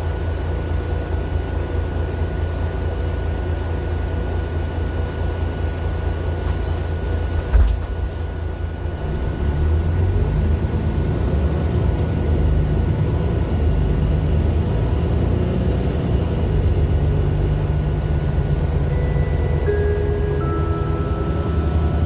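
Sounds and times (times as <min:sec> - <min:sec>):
diesel bus engine drone: 0:00.0 - 0:22.0
road noise: 0:05.9 - 0:22.0.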